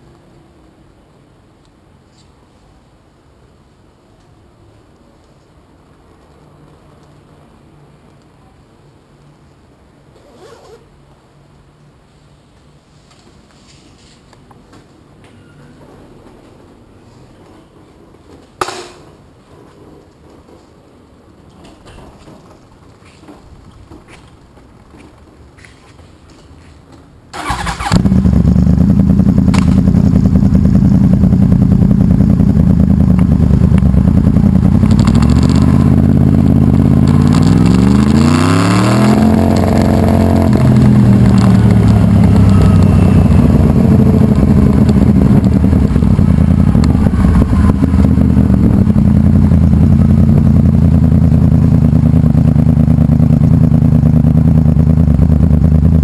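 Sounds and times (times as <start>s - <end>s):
loud motorcycle engine revving: 27.4s - 56.0s.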